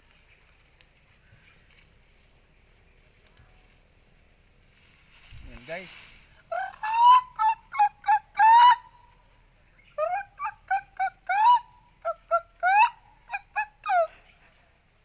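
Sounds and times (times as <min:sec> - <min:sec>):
bird calling: 0:05.5 - 0:14.6.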